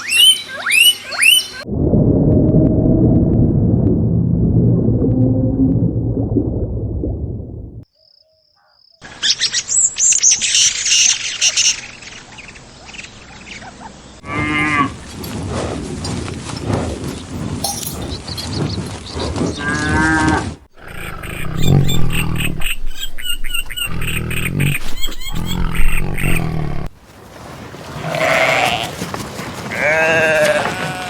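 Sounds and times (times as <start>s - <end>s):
noisy farmyard background: 9.0s - 31.0s
cows mooing: 14.2s - 27.0s, 28.0s - 29.0s.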